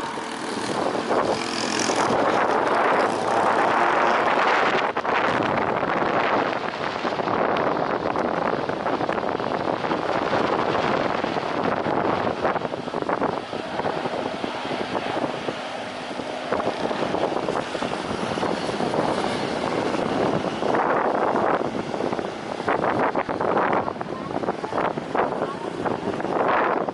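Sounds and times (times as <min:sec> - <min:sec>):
jet engine roar: 0:00.0 - 0:26.9
wind buffeting microphone: 0:00.0 - 0:26.9.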